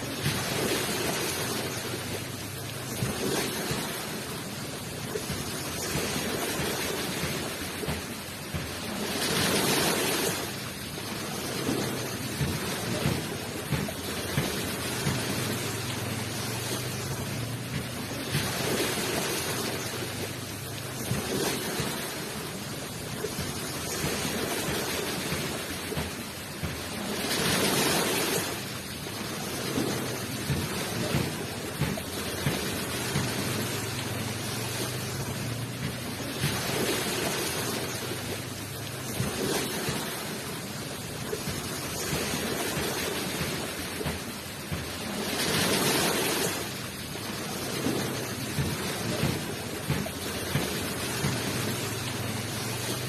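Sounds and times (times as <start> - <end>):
ocean waves washing onto shore: 0.0 - 53.0.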